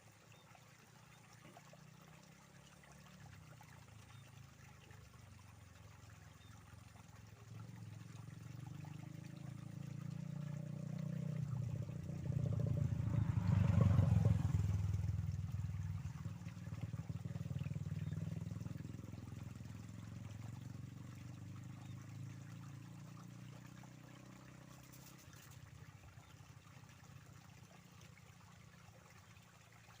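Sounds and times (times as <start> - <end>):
water trickling: 0.0 - 30.0
motor vehicle passing by: 1.0 - 30.0.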